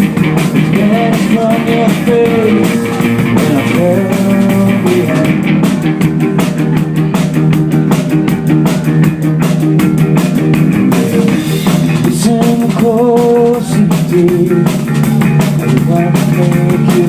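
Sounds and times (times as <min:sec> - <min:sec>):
rock band playing live: 0:00.0 - 0:17.0
person singing: 0:00.6 - 0:07.4, 0:10.9 - 0:17.0.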